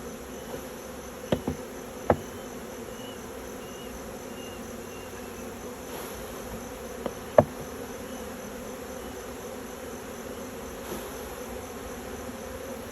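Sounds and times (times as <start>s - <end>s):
bees buzzing: 0.8s - 12.9s
short knocks: 1.3s - 2.4s, 7.0s - 7.8s.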